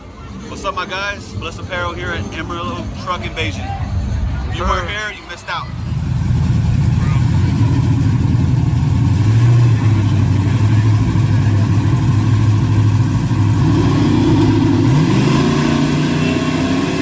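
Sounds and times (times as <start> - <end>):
truck engine revving: 5.7 - 17.0.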